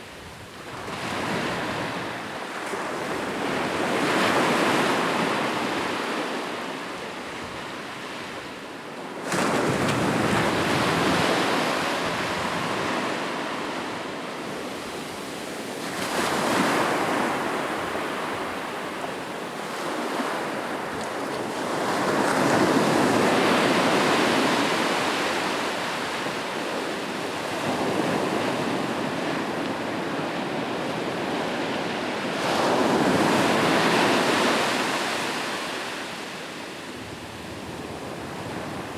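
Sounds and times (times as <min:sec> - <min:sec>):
ocean waves breaking: 0:14.6 - 0:26.4.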